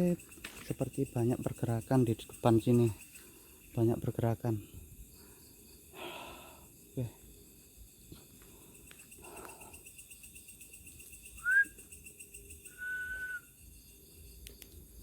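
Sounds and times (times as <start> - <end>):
crickets trilling: 0.0 - 15.0
short whistles: 11.4 - 11.8, 12.7 - 13.5.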